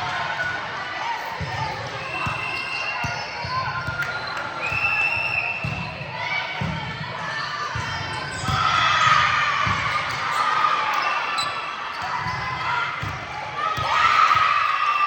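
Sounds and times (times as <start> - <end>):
voices calling in echoing hall: 0.0 - 15.0
sneakers squeaking: 1.2 - 6.1, 7.4 - 14.5.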